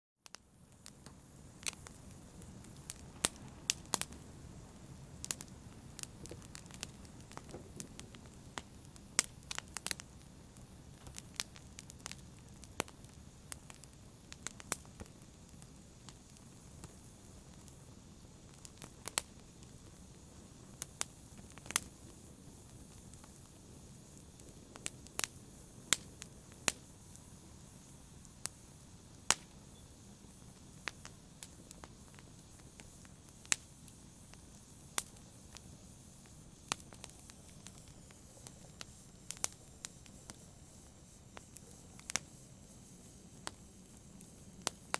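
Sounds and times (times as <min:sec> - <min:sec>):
campfire crackling and popping: 0:00.2 - 0:44.9
low rumble of flames: 0:00.3 - 0:44.9.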